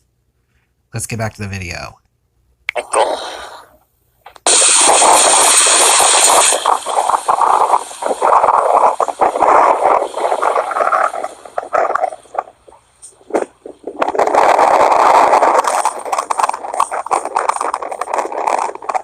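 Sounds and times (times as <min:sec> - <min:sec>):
wind buffeting microphone: 0:04.5 - 0:19.0.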